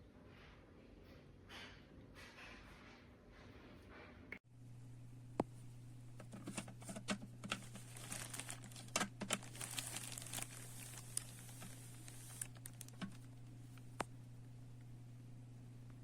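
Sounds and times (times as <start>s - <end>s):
steady low hum: 4.4s - 16.0s
crinkling and clicking handling noises: 6.1s - 14.2s.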